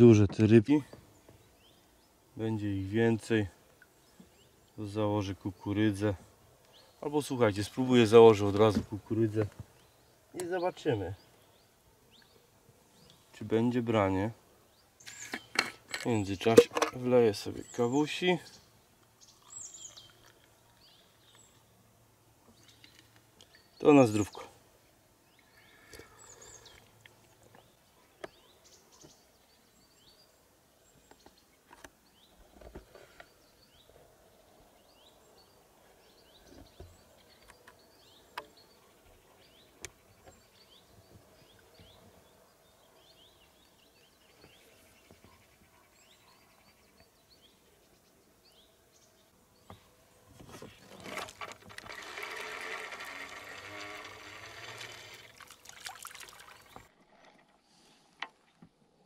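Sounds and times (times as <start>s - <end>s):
small birds chirping: 0.0s - 53.2s, 54.1s - 57.0s
water rushing and splashing: 55.2s - 56.8s.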